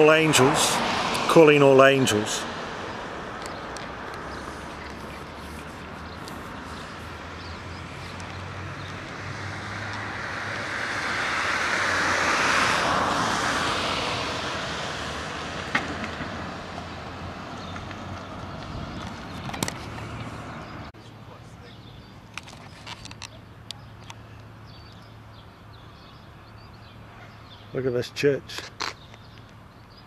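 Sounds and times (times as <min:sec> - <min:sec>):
vehicle passing by: 0:00.0 - 0:20.9.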